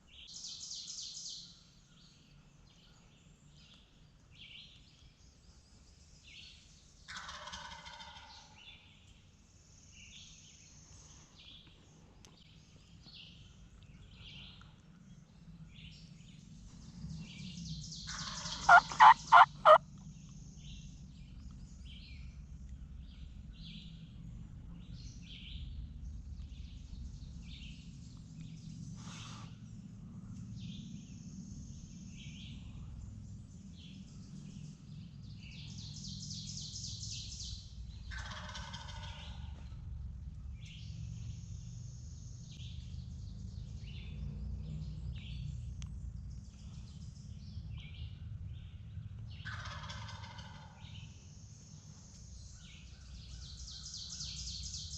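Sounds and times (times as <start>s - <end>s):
songbirds chirping: 0.0s - 54.9s
turkey gobbling: 7.1s - 8.3s, 18.2s - 19.8s, 38.1s - 39.2s, 49.5s - 50.8s.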